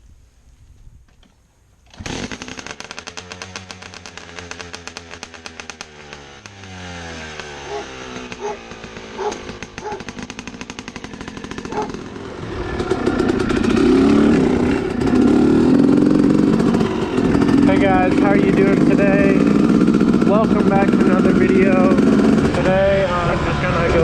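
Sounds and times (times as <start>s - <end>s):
dirt bike engine revving: 1.9s - 24.0s.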